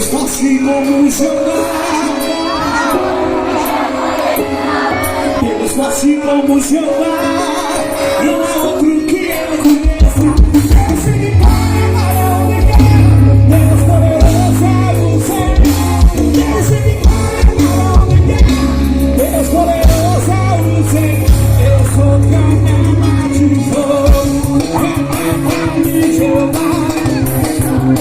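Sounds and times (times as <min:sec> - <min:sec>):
gospel band playing: 0:00.0 - 0:28.0
person singing: 0:00.0 - 0:28.0
heavy bass: 0:09.9 - 0:28.0.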